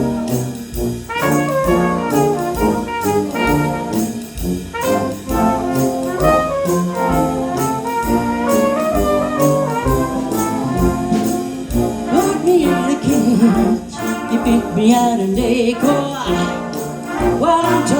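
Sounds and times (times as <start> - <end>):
big band brass playing jazz: 0.0 - 17.9
steady beat: 0.0 - 17.9.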